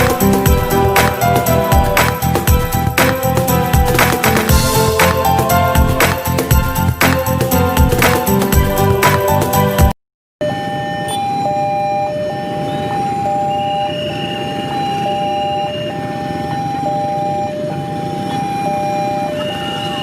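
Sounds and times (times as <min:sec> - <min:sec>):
level crossing two-tone alarm: 0:10.4 - 0:20.0.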